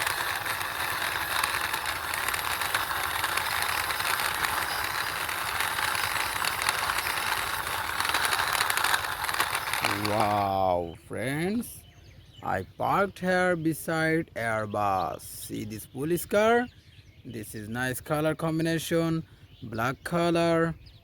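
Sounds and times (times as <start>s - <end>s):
plastic toy wheels rattling: 0.0s - 10.6s.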